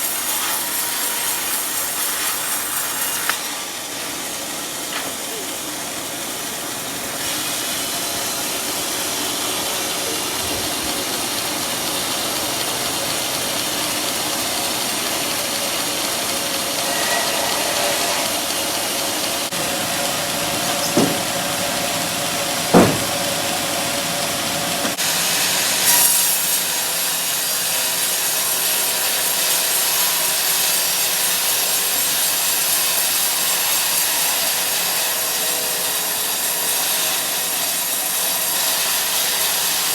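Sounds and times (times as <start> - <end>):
sawmill saw cutting log: 0.0 - 39.9
short knocks: 20.6 - 21.5, 22.7 - 23.4.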